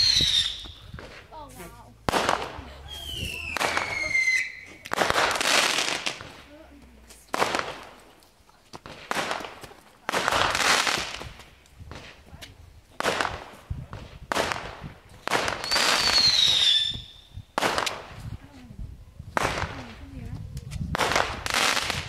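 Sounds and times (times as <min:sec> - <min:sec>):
falling firework whistle: 0:00.0 - 0:01.2, 0:02.3 - 0:05.1, 0:15.6 - 0:17.4
fireworks bangs and crackling: 0:00.0 - 0:18.6, 0:19.2 - 0:22.0.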